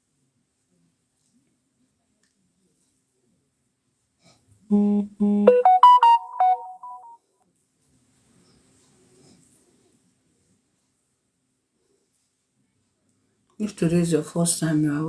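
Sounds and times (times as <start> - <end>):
electronic phone jingle: 4.7 - 7.2.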